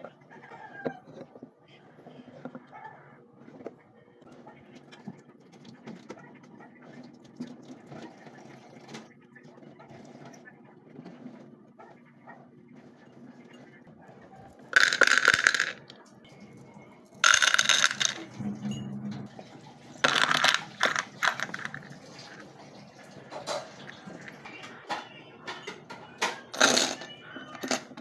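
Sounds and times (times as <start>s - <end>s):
small hard objects rattling: 14.4s - 16.0s, 17.2s - 18.4s, 20.0s - 22.5s, 26.5s - 28.0s.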